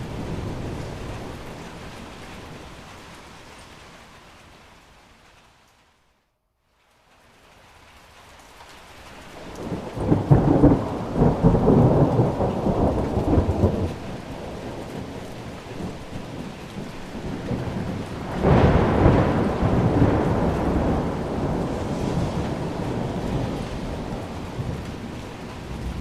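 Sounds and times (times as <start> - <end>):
rain falling: 0.0 - 26.0
thunder rolling: 9.6 - 26.0.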